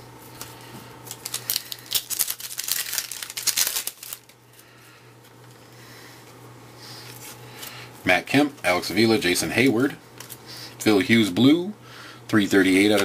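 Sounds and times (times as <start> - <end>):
foil wrapper crinkling and tearing: 0.3 - 4.6.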